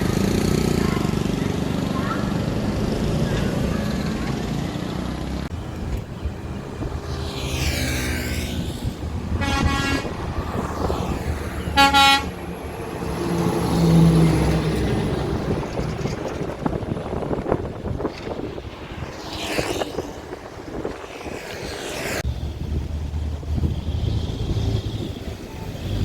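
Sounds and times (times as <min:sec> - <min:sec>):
heavy diesel engines running: 0:00.0 - 0:19.2, 0:22.2 - 0:26.0
engine revving: 0:02.5 - 0:20.4, 0:21.0 - 0:26.0
machinery horn toots: 0:09.3 - 0:10.2, 0:11.6 - 0:12.5.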